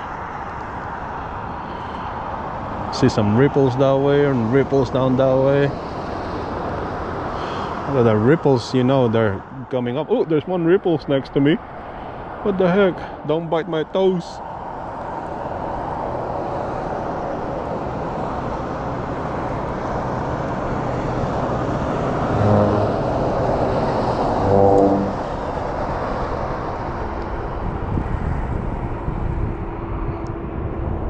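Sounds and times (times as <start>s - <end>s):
passing vehicle rushing: 14.2s - 31.0s
horn blasts: 22.0s - 25.5s.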